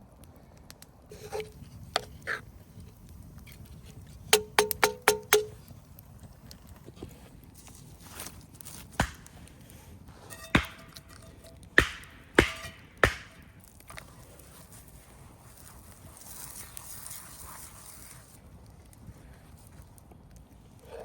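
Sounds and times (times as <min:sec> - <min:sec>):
sharp knocks: 0:04.4 - 0:05.5, 0:10.5 - 0:11.1, 0:11.8 - 0:13.4.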